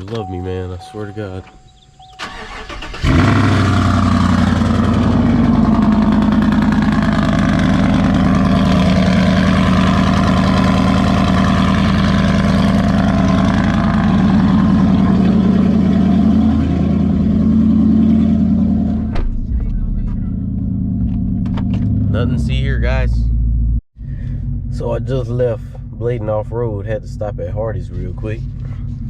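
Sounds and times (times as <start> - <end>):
loud pickup truck engine idling: 2.0 - 20.9.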